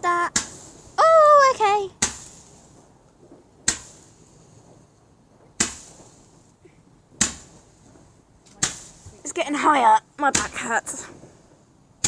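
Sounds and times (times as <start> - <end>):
fireworks exploding: 0.0 - 12.0.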